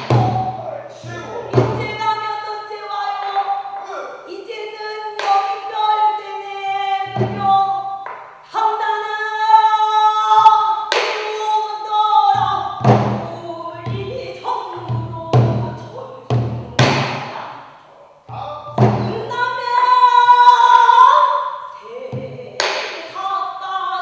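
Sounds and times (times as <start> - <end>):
barrel drum strokes: 0.0 - 2.2, 7.0 - 8.2.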